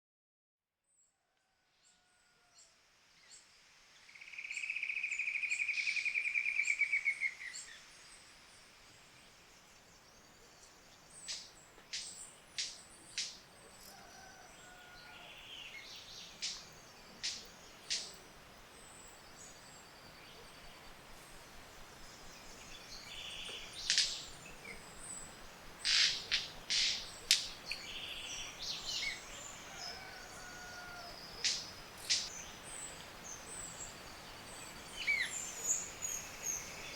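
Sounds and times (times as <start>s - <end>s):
bird snapping calls: 16.4s - 18.1s, 23.8s - 24.2s, 25.8s - 27.6s, 31.4s - 32.3s.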